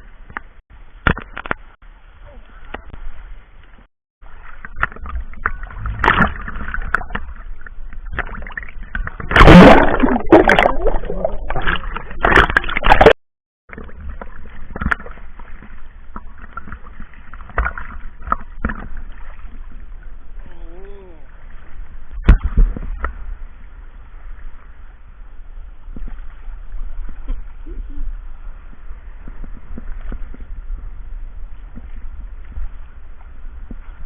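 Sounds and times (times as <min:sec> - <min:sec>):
seawater sloshing and splashing: 0:03.1 - 0:20.6
small knocks and gurgles: 0:04.2 - 0:19.8, 0:22.2 - 0:23.2.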